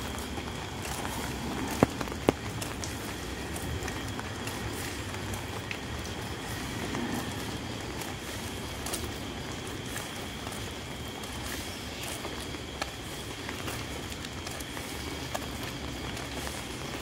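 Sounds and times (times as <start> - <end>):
steady rain falling: 0.0 - 17.0
drip ticks: 0.1 - 11.4.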